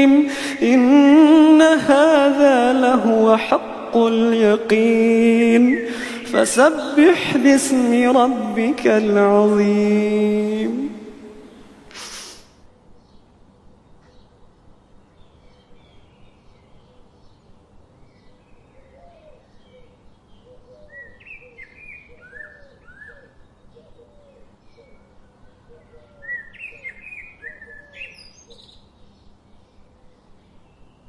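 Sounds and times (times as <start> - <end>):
birds chirping and singing: 0.0 - 11.7, 15.0 - 31.0
low repeated bird calls: 0.0 - 12.0, 12.6 - 31.0
falling bird song notes: 15.1 - 31.0.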